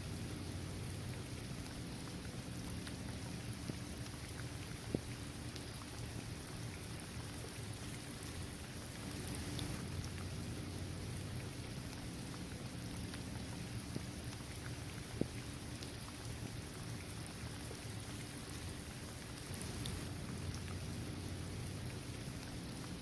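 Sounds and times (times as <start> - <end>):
rain pattering: 0.0 - 23.0
single raindrops ticking: 9.0 - 10.9, 18.0 - 23.0.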